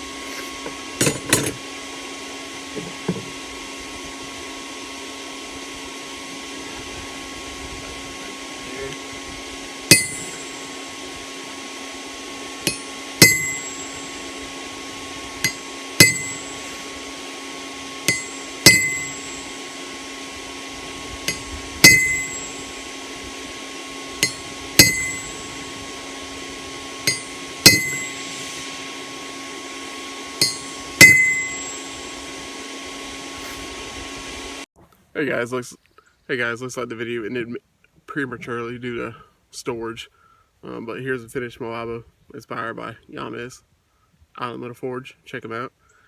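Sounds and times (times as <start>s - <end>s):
steady hum: 0.0s - 34.7s
hammer striking chisel on steel: 9.9s - 10.5s, 12.6s - 14.1s, 15.4s - 16.6s, 18.1s - 19.4s, 21.3s - 22.6s, 24.2s - 25.5s, 27.0s - 28.3s, 30.4s - 31.8s.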